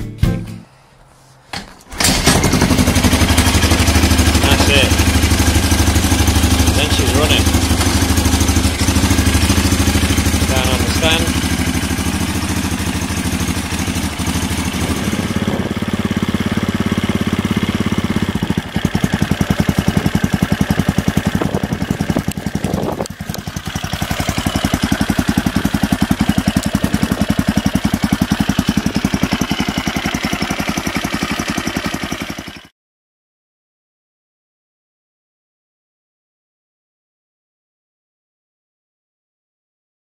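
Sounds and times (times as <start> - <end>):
motorcycle engine idling: 2.1 - 32.7.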